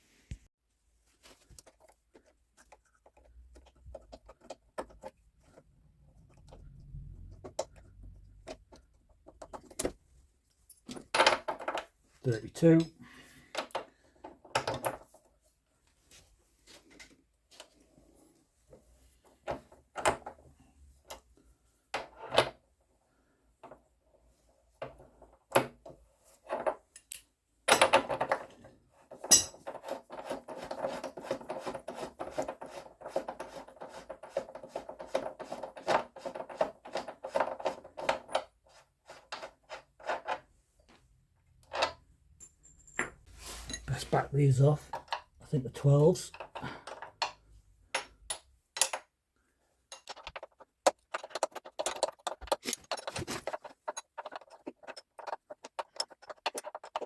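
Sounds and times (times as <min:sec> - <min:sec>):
metal tools clinking: 0:29.2 - 0:29.7, 0:41.8 - 0:44.1, 0:49.9 - 0:50.5
rapid clicking and rattling: 0:50.1 - 0:57.0.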